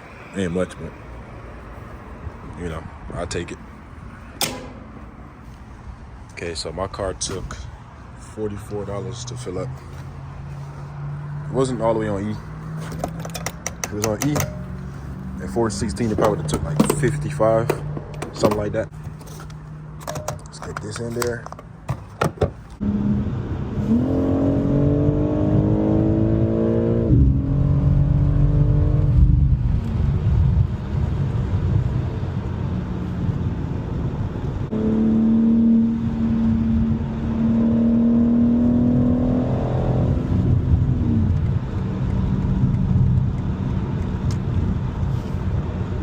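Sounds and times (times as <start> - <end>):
car engine accelerating hard: 22.8 - 46.0.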